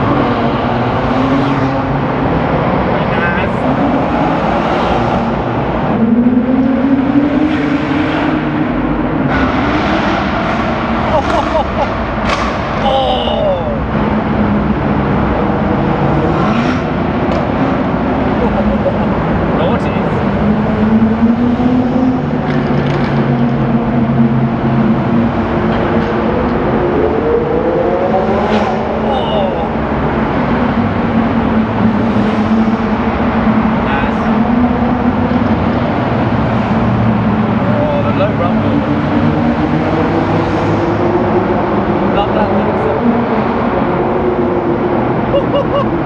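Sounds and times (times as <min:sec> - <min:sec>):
car engines revving in a tunnel: 0:00.0 - 0:46.0.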